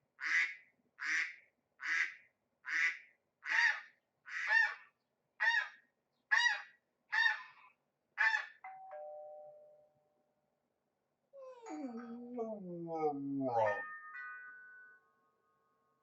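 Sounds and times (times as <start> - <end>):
two-note doorbell chime: 8.7 - 10.1.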